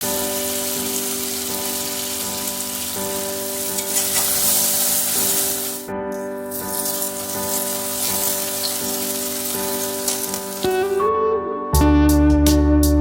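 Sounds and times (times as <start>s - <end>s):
okra sizzling in oil: 0.0s - 11.0s.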